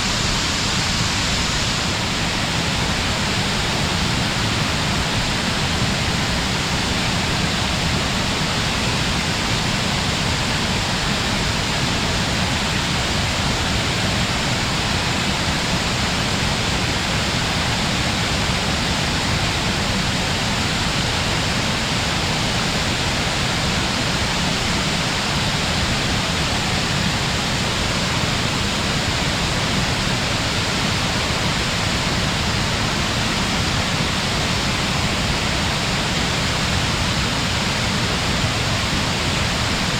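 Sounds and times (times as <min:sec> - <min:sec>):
distant waterfall roaring: 0:00.0 - 0:39.9.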